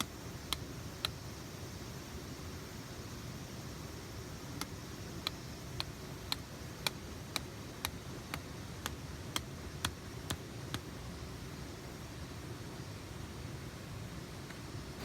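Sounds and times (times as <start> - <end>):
sharp ticks: 0.0 - 1.2, 4.6 - 10.9.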